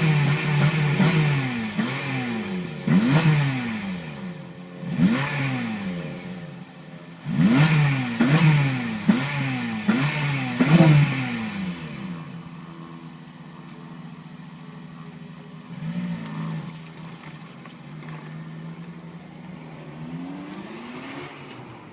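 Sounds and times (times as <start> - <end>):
car engine revving and idling: 0.0 - 21.9.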